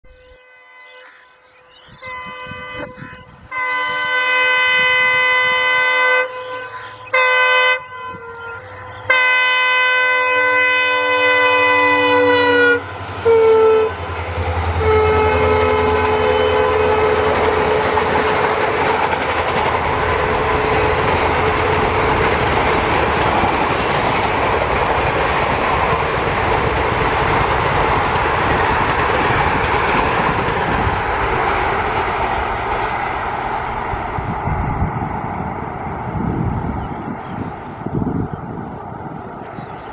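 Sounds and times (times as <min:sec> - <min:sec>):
locomotive horn blasts: 0:00.0 - 0:14.1, 0:14.7 - 0:18.4
locomotive engine rumble: 0:10.4 - 0:39.9
train wheels clattering over rails: 0:15.7 - 0:34.9.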